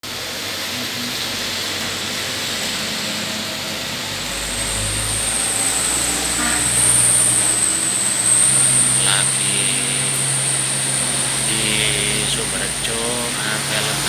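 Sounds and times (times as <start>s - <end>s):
low rumble of passing vehicle: 0.0s - 14.0s
rain hiss: 0.0s - 14.0s
vehicle engine noise: 0.0s - 14.0s
wet tyres on road: 0.0s - 14.0s
thin high whine: 0.6s - 14.0s.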